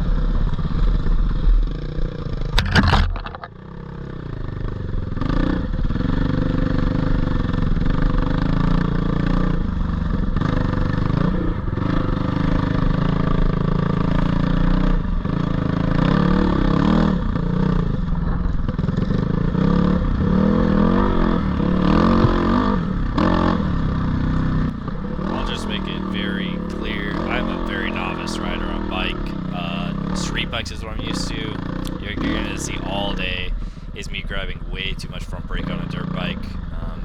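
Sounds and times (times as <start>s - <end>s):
dirt bike engine revving: 18.8s - 34.4s.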